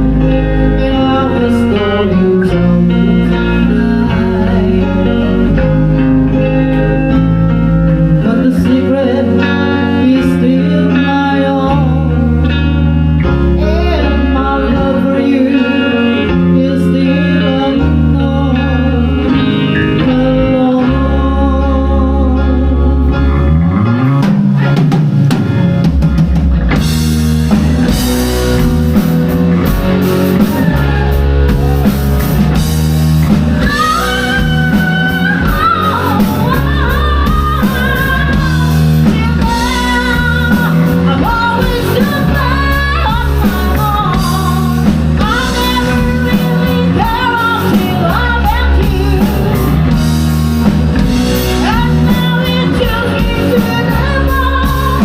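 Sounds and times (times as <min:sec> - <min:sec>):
person singing: 0:00.0 - 0:24.3, 0:29.6 - 0:50.2, 0:51.2 - 0:55.0
rock band playing: 0:00.0 - 0:55.0
drum kit: 0:22.8 - 0:55.0.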